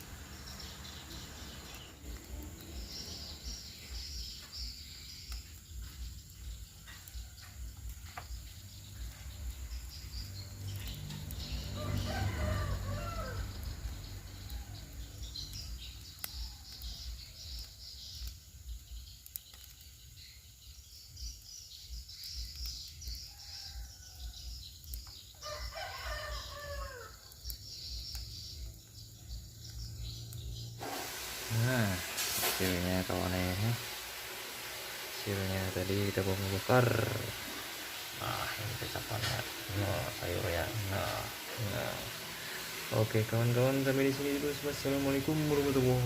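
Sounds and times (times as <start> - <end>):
small birds chirping: 0.0 - 34.0, 35.2 - 46.0
rooster crowing: 10.8 - 15.2, 25.4 - 27.4, 35.2 - 46.0.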